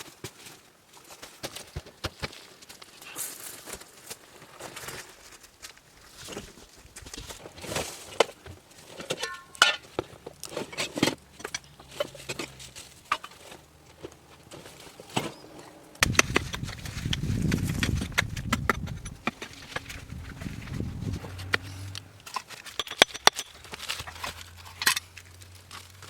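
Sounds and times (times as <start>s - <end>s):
rough scraping rumble: 10.6s - 26.0s
sharp knocks and clatters: 16.0s - 25.1s.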